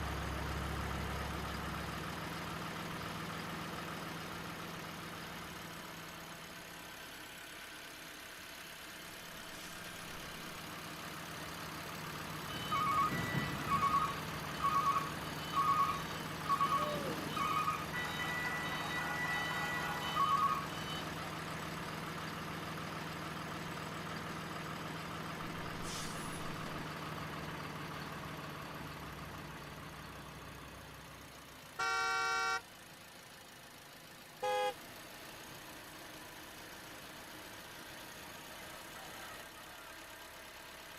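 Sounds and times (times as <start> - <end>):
long horn blast: 16.6 - 20.9, 31.8 - 32.6, 34.4 - 34.8
short horn toots: 31.8 - 32.6, 34.4 - 34.8.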